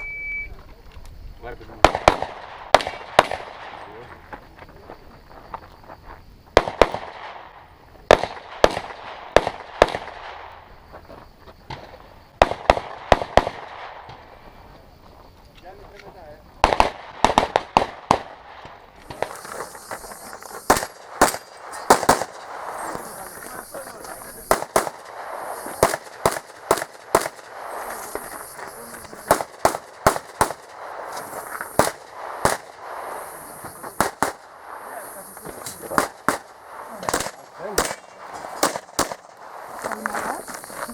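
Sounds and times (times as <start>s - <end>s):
handgun shots: 20.6s - 25.2s, 25.8s - 28.3s, 29.0s - 32.8s, 34.0s - 34.4s, 35.6s - 39.4s
faint gunshot pops: 35.4s - 39.3s.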